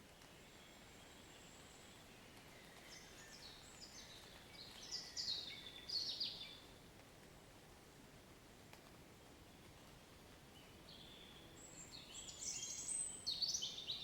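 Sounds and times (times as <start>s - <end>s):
songbird singing: 0.0s - 6.8s, 9.5s - 14.0s.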